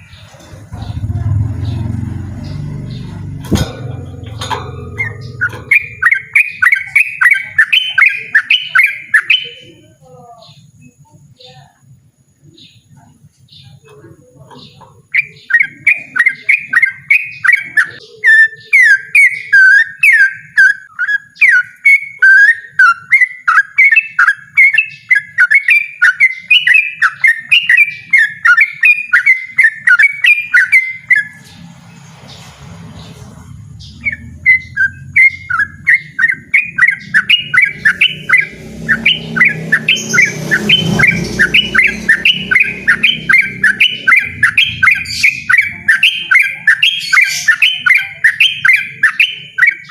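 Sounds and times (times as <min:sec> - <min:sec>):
bird singing rapid chirps: 0:00.0 - 0:49.9
low rumble: 0:00.4 - 0:06.9.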